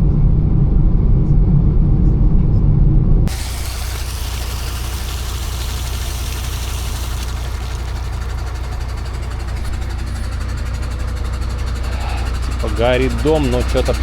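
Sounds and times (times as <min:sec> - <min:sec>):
car engine and road drone: 0:03.2 - 0:14.0
tyre hiss: 0:03.3 - 0:12.9.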